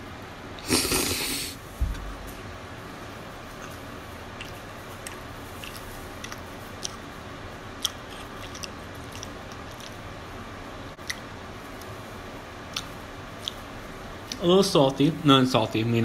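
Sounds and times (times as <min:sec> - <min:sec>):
person chewing crunchy toast: 0:03.5 - 0:07.1, 0:07.7 - 0:10.1.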